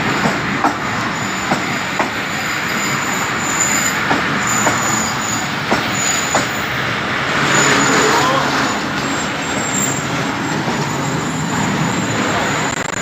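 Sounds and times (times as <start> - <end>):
train rumbling: 0.0 - 13.0
train wheel squeal: 0.1 - 6.8, 7.4 - 12.7.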